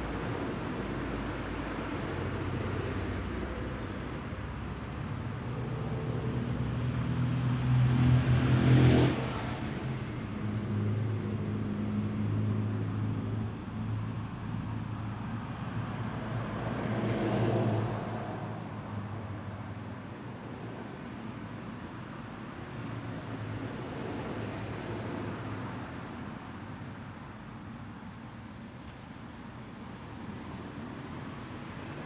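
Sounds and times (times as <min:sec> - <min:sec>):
vehicle engine passing: 0:05.5 - 0:13.3.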